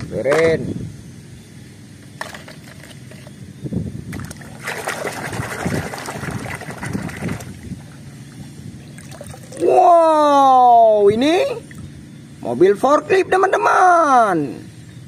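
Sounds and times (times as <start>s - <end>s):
hand sloshing water in basin: 4.2s - 8.0s.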